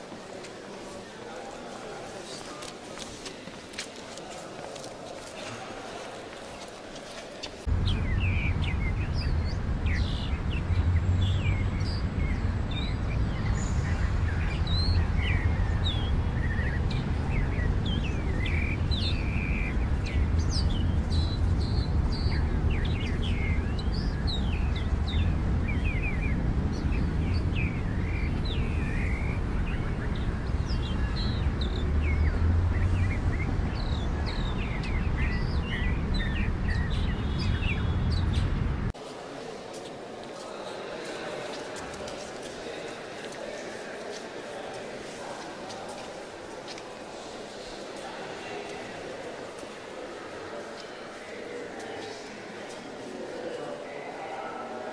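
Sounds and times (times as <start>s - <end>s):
small birds chirping: 7.4s - 38.9s
steady low rumble: 7.7s - 38.9s.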